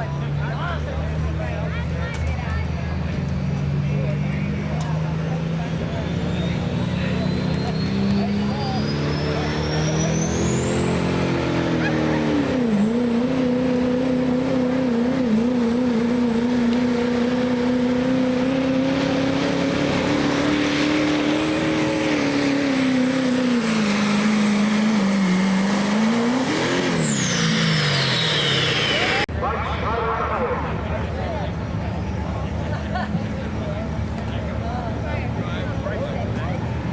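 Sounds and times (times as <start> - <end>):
diesel truck engine revving: 0.0 - 36.9
turbocharger whistle: 5.9 - 13.6, 19.6 - 30.8.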